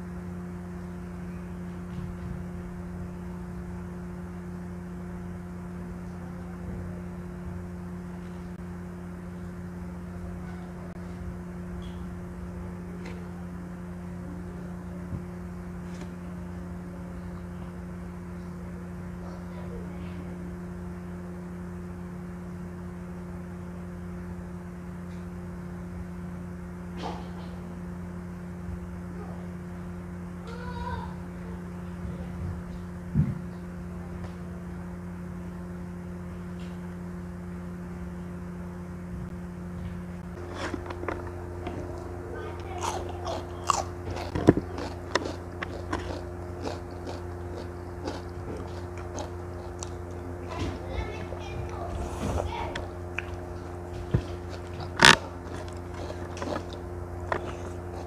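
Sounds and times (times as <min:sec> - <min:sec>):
steady low hum: 0:00.0 - 0:58.0
cucumber crunching: 0:40.3 - 0:58.0
person chewing: 0:40.3 - 0:58.0.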